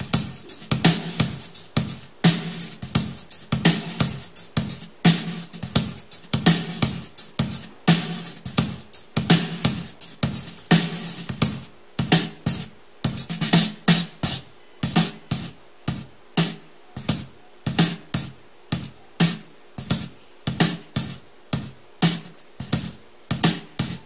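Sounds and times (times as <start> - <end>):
snare or cymbal hits: 0.0 - 24.0
kick drum thumps: 19.8 - 24.0.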